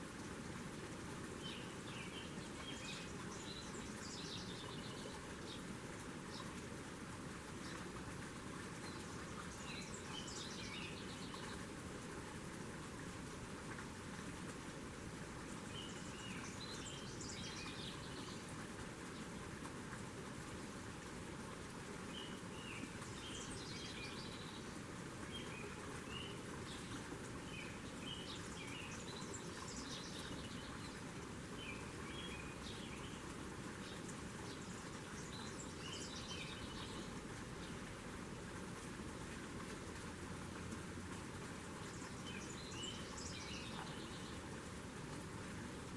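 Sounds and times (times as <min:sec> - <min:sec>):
outdoor background hiss: 0:00.0 - 0:45.9
small birds chirping: 0:01.4 - 0:05.7, 0:08.8 - 0:11.7, 0:15.7 - 0:18.5, 0:22.1 - 0:37.9, 0:41.6 - 0:44.5.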